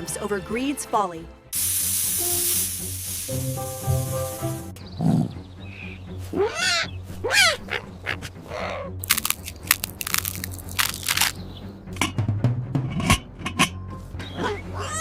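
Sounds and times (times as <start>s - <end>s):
cartoon animal-like squeals: 14.4s - 15.0s.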